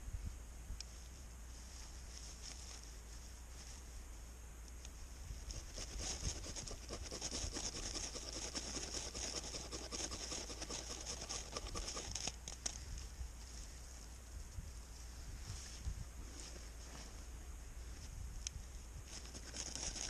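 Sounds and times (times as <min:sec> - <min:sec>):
ferro rod scraped with striker: 0:05.6 - 0:12.5.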